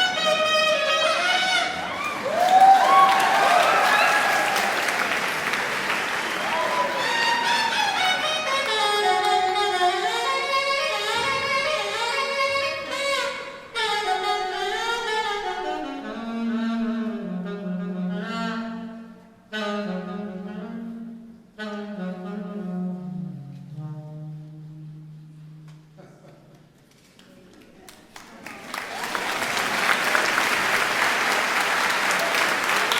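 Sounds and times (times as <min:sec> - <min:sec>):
alto saxophone playing: 0:00.0 - 0:02.2, 0:04.4 - 0:26.0
musical accompaniment: 0:05.2 - 0:26.0.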